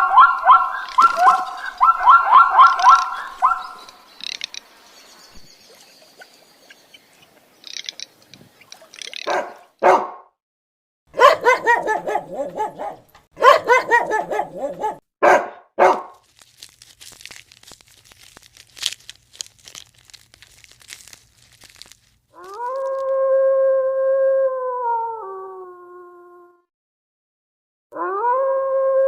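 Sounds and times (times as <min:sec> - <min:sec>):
dog barking: 0:00.0 - 0:03.9, 0:09.3 - 0:10.3, 0:11.1 - 0:16.2
dog howling: 0:00.0 - 0:03.9, 0:11.2 - 0:15.0, 0:22.4 - 0:26.6, 0:28.0 - 0:29.0.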